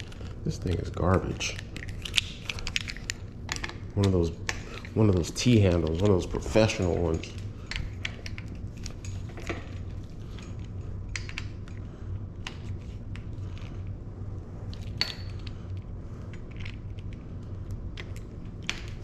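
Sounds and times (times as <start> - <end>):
metallic clicks of bike parts: 0.0 - 11.8
steady low hum: 0.0 - 19.0.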